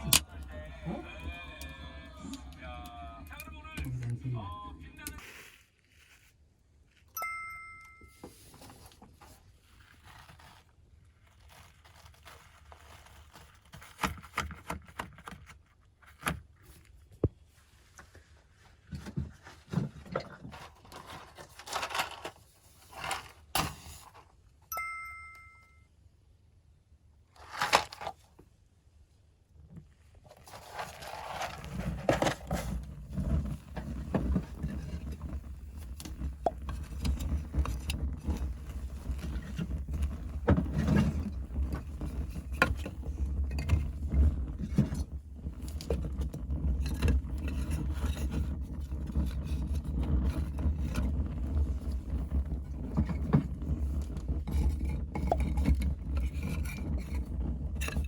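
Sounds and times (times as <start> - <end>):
fire crackling with low rumble: 0.0 - 6.3, 30.6 - 58.0
paper rustling: 5.2 - 7.1, 8.3 - 24.3, 27.3 - 28.2, 30.1 - 43.8
short ding: 7.2 - 8.2, 24.7 - 25.8
wooden knocks and scrapes: 16.2 - 24.3, 30.2 - 58.0.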